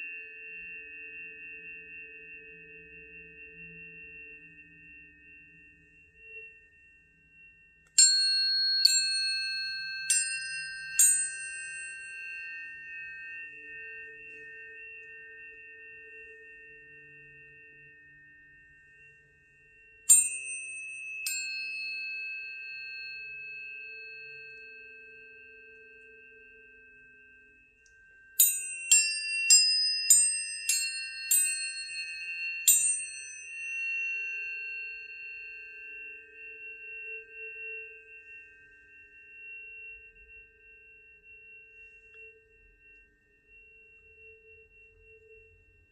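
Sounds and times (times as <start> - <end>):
tuning forks ringing: 0.0 - 45.9.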